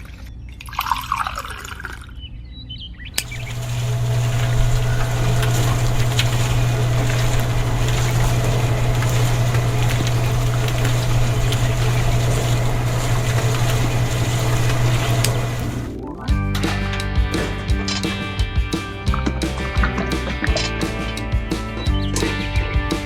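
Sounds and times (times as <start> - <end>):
small motor humming: 3.2 - 15.9.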